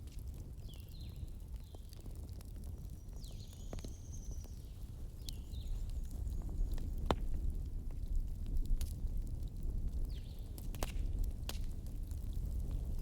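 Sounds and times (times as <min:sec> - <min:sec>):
fire crackling and popping: 0:00.0 - 0:13.0
fire roaring: 0:05.7 - 0:13.0.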